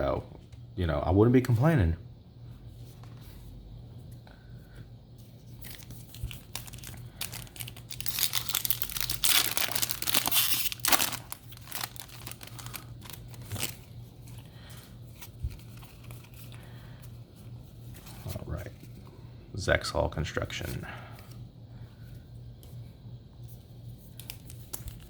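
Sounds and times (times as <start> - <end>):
foil wrapper crinkling and tearing: 5.6 - 14.6, 24.1 - 25.0.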